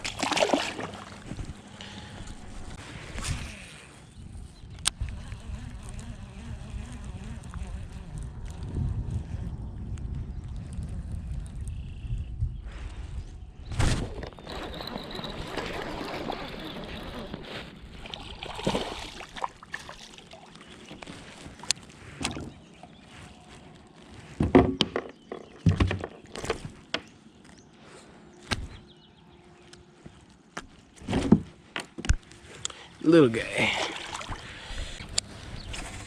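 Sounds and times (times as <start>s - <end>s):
water sloshing against kayak: 0.0s - 3.4s, 14.0s - 26.9s, 33.3s - 36.0s.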